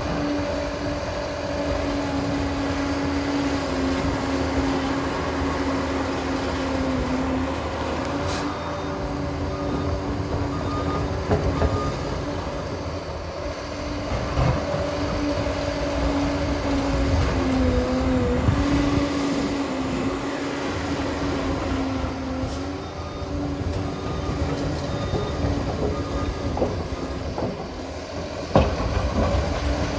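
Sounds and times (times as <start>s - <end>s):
diesel dozer engine droning: 0.0s - 29.9s
machine knocks and clanks: 24.3s - 29.9s.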